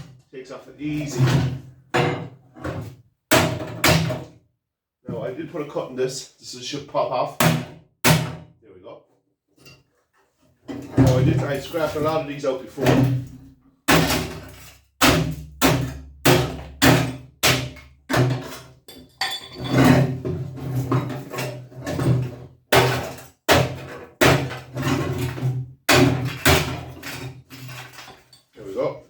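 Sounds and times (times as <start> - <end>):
hand tool striking copper tank: 13.9 - 20.4, 21.0 - 27.2.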